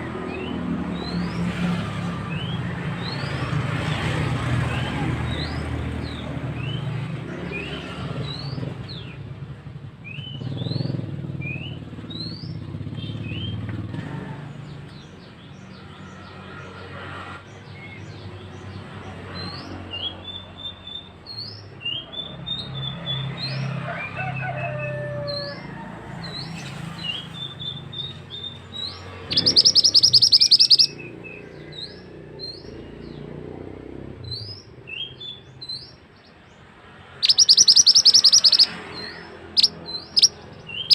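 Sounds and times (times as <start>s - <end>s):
bird chirping: 26.2s - 33.4s, 34.2s - 40.9s.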